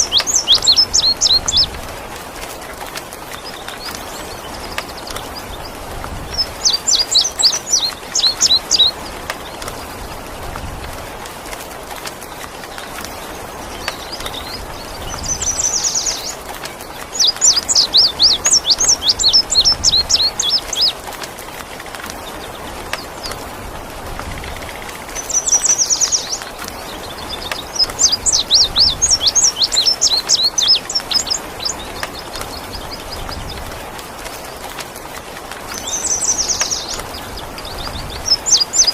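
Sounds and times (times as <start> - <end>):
hiss of rain or running water: 0.0 - 38.9
songbird singing: 0.0 - 38.9.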